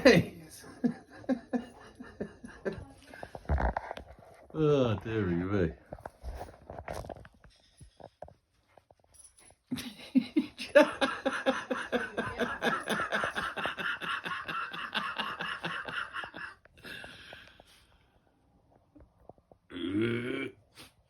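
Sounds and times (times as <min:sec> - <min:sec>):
person laughing hard: 0:09.7 - 0:16.6.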